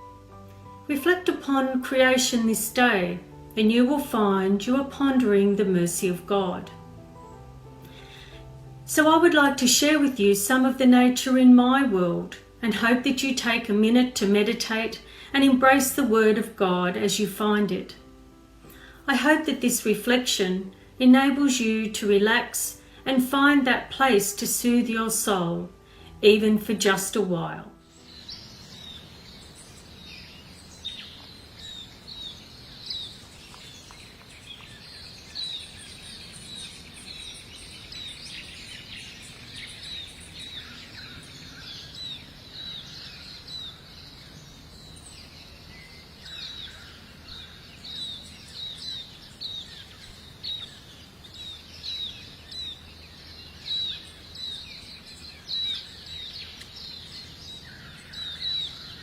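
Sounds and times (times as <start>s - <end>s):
faint steady hiss: 0.0s - 58.9s
birds chirping: 26.3s - 59.0s.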